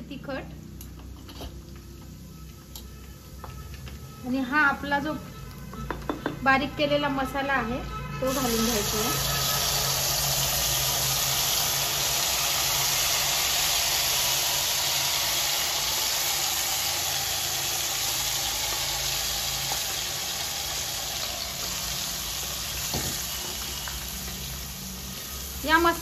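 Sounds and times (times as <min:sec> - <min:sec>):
paste sizzling in hot oil: 0:08.3 - 0:26.0.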